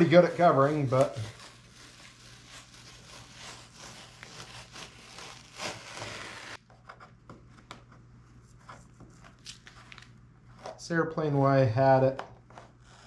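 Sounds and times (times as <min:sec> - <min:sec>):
tape peeling off foam: 0:00.0 - 0:06.6.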